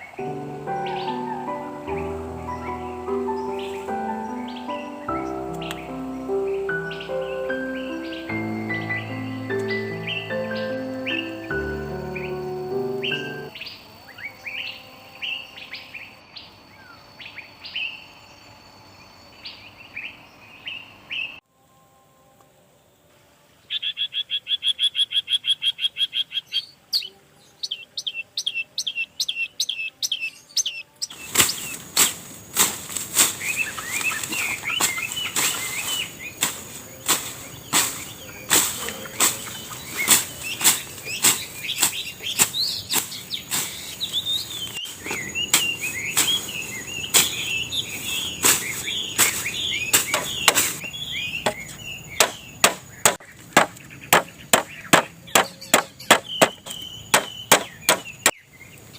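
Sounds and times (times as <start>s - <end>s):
high insect whine: 0.0s - 19.9s, 27.6s - 58.3s
birds chirping: 0.0s - 21.4s, 23.7s - 58.9s
warbling birdsong: 0.0s - 21.4s, 23.6s - 58.9s
sharp knocks: 50.0s - 50.7s, 51.4s - 58.3s.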